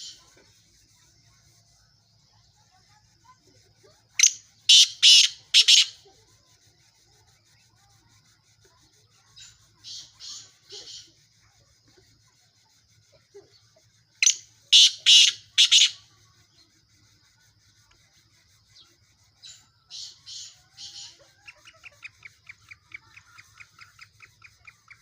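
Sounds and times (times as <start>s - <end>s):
francolin harsh grating call: 4.2s - 6.0s, 9.4s - 11.1s, 14.2s - 16.2s, 19.4s - 25.0s.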